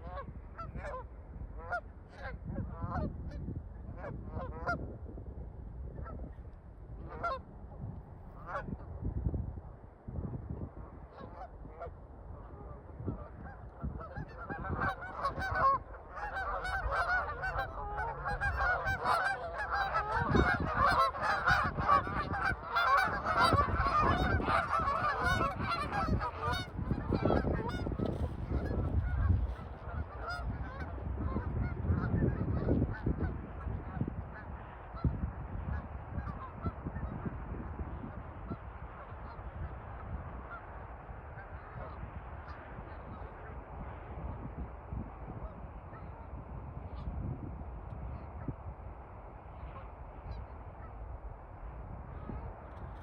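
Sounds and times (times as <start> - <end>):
geese honking: 12.6 - 35.1.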